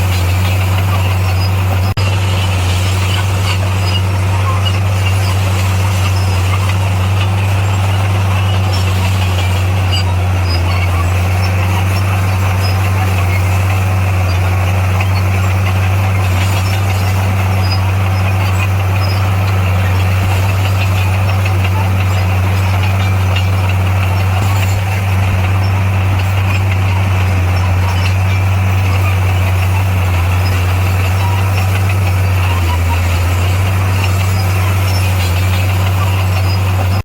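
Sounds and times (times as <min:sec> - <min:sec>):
heavy diesel engine humming: 0:00.0 - 0:37.0.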